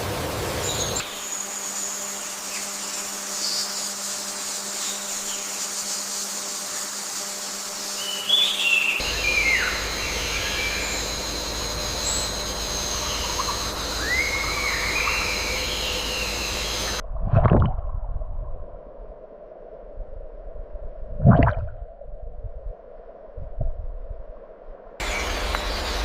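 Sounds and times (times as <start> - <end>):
insects droning: 0.0 - 17.0, 22.7 - 26.0.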